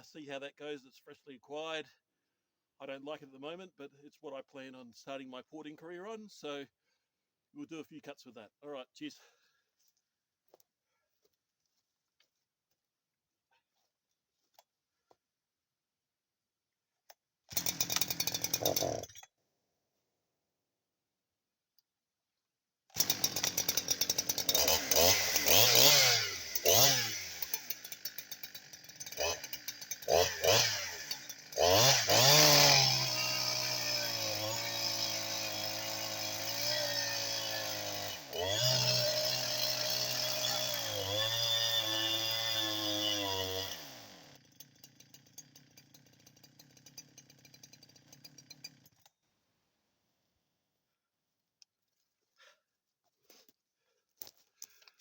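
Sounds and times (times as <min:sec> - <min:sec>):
chainsaw engine starting: 0:17.5 - 0:19.2, 0:22.9 - 0:49.2.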